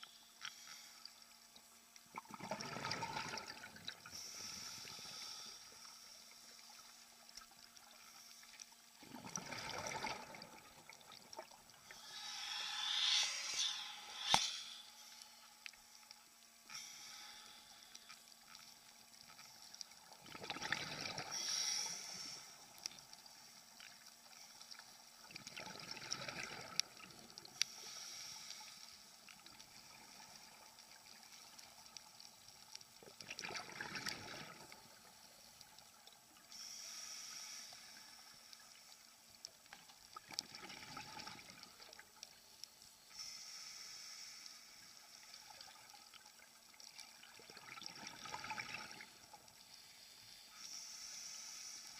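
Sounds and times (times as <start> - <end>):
gurgling exhaled bubbles: 2.1 - 4.1, 9.0 - 13.5, 20.2 - 21.4, 25.3 - 27.3, 33.2 - 34.8, 40.3 - 41.6, 47.3 - 49.2
regulator inhalation hiss: 4.1 - 7.1, 11.8 - 19.8, 21.3 - 23.6, 27.5 - 30.5, 36.5 - 38.8, 43.0 - 45.5, 49.6 - 51.9.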